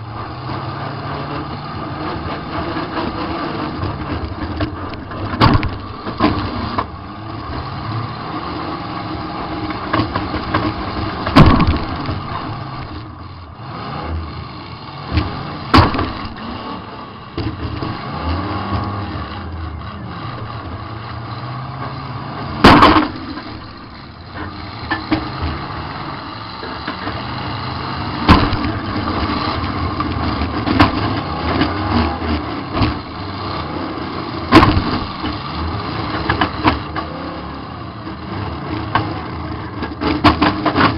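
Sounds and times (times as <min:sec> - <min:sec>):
car engine revving: 0:00.0 - 0:40.9
hard metal crashes: 0:11.2 - 0:12.3, 0:22.6 - 0:23.9, 0:28.2 - 0:29.2, 0:34.5 - 0:35.2.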